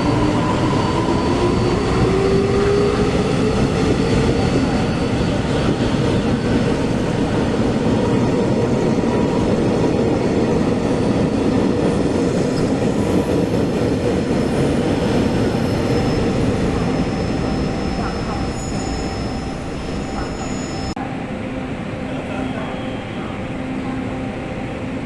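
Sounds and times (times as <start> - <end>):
train rumbling past on rails: 0.0 - 25.0
thin high whine: 6.6 - 21.0.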